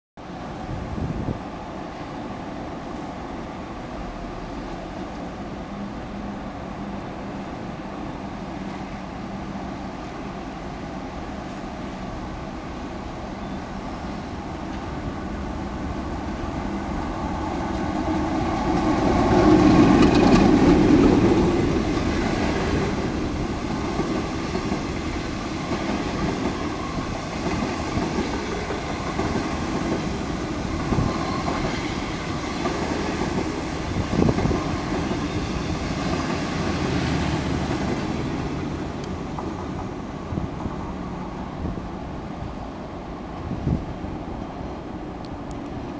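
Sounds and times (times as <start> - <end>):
diesel locomotive engine passing: 0.2 - 45.9
passenger coaches rolling by: 0.2 - 45.9.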